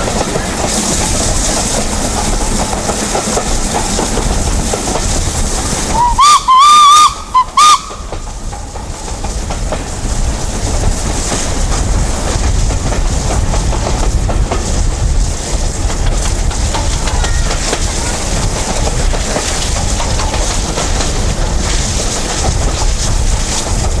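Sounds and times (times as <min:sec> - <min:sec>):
locomotive exhaust beats: 0:00.0 - 0:24.0
wheels on rails: 0:00.0 - 0:24.0
steam locomotive whistle: 0:05.8 - 0:08.3.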